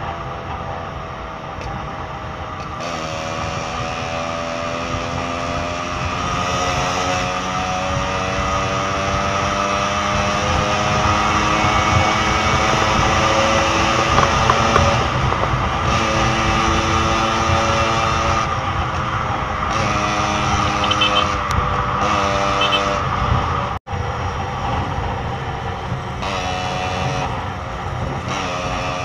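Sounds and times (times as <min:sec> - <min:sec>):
wind and road noise: 0:00.0 - 0:29.0
two-stroke motorcycle engine: 0:02.2 - 0:29.0.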